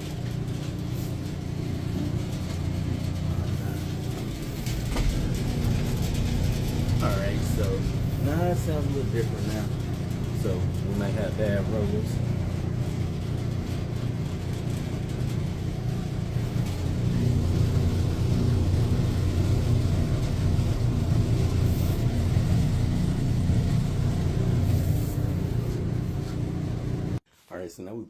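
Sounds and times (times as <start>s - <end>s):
clothes dryer rumbling: 0.0s - 27.3s.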